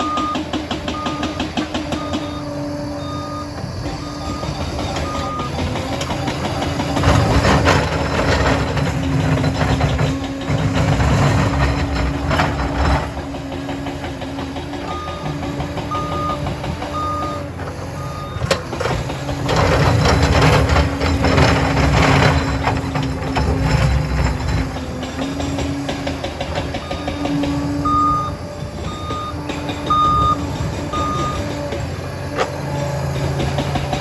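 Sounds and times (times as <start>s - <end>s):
reversing alarm beeping: 0.0s - 9.7s, 14.8s - 24.5s, 26.5s - 32.3s
dozer diesel engine under load: 0.0s - 34.0s.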